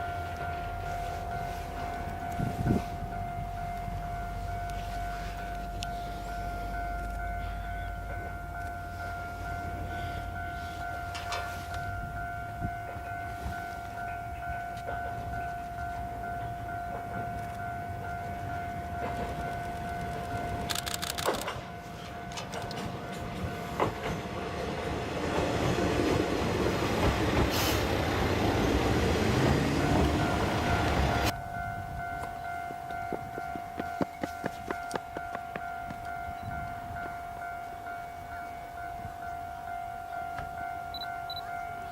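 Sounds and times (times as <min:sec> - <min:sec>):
diesel railcar passing: 0:00.0 - 0:41.9
steady ringing tone: 0:29.9 - 0:41.9.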